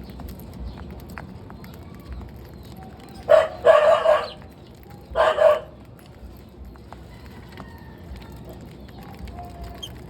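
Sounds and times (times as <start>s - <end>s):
rooster crowing: 7.1s - 8.5s.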